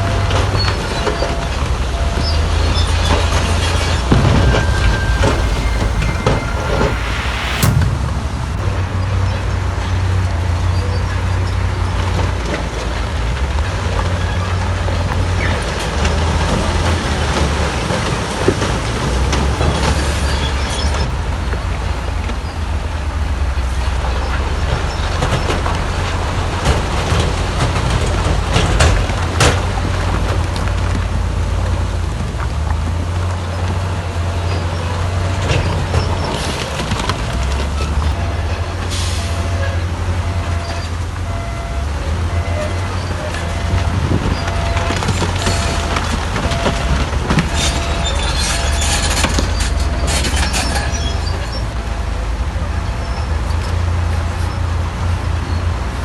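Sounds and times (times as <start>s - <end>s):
heavy machinery diesel engines: 0.0s - 56.0s
sharp metallic clanks: 4.1s - 11.3s.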